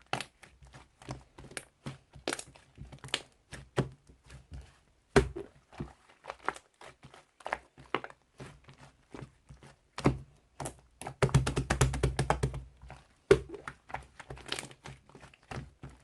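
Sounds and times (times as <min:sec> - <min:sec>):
slime squishing and clicking: 0:00.0 - 0:03.9, 0:10.0 - 0:16.0.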